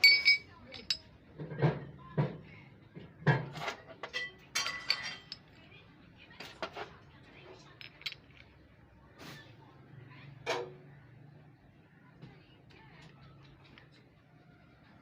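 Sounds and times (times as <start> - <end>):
metal tools clinking and clattering: 0.0 - 1.8, 3.3 - 5.7, 6.4 - 8.6.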